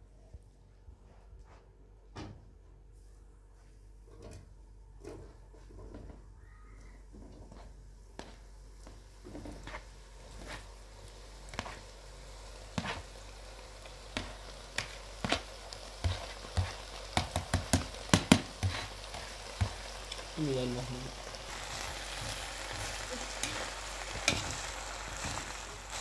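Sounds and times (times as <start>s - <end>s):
food sizzling in a pan: 7.4s - 26.0s.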